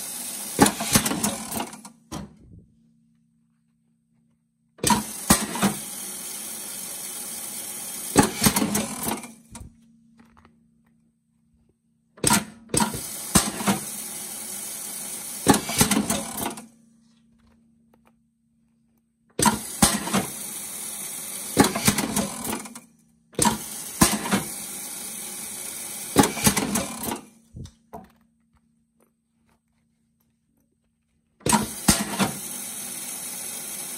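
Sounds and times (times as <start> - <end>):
riveting machine noise: 0.0 - 2.3, 4.8 - 9.8, 12.2 - 16.8, 19.4 - 28.1, 31.4 - 33.9.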